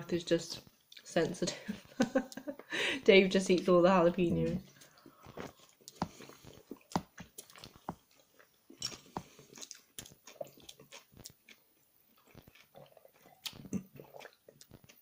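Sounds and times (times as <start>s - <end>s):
person chewing food: 4.8s - 15.0s.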